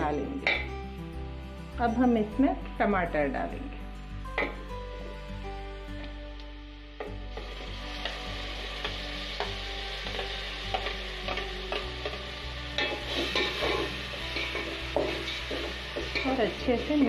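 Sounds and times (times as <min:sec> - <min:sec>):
tomatoes sizzling in oil: 0:04.1 - 0:17.0.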